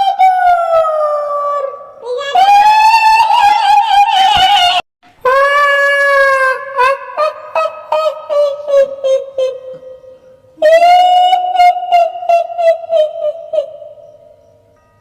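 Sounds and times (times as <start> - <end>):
woman wailing high-pitched: 0.0 - 9.9, 10.6 - 14.0
woman cackling: 5.3 - 9.9, 10.7 - 13.9.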